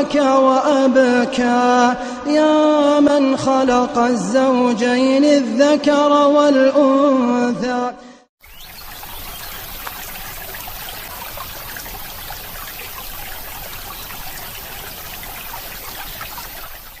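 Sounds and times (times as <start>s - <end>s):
small splashes and drips: 8.4s - 17.0s
trickling stream: 8.4s - 17.0s.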